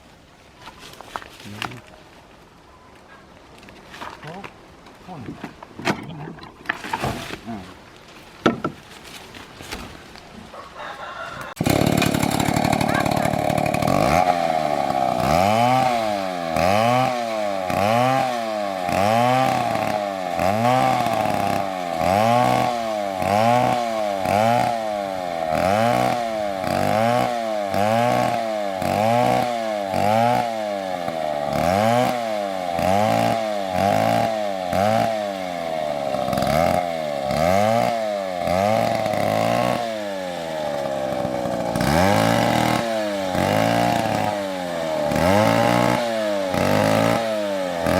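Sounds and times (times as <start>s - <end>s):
chainsaw cutting tree: 11.4s - 47.9s.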